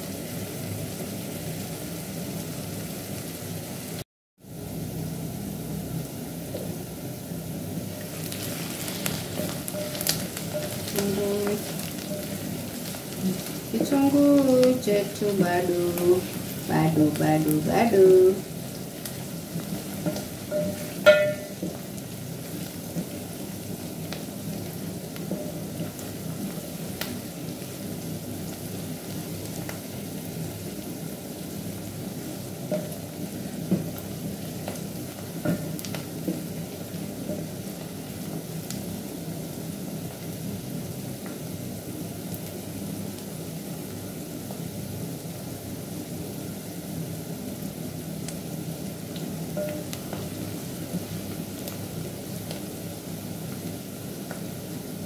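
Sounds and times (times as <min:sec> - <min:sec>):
vegetables sizzling in oil: 0:00.0 - 0:55.0
spoon knocking on metal pot: 0:20.1 - 0:21.8
sharp knock with metallic ring: 0:20.6 - 0:21.6.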